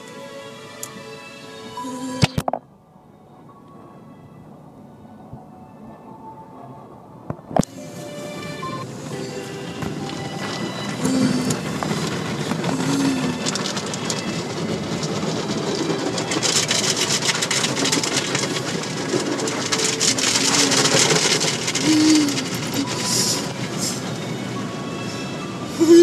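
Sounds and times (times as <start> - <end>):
car wash water spray and brushes: 7.7 - 26.0.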